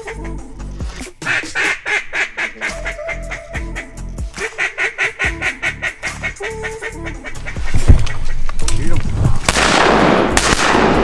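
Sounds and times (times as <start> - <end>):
background music: 0.0 - 8.6, 9.3 - 11.0
duck quacking: 1.2 - 8.5.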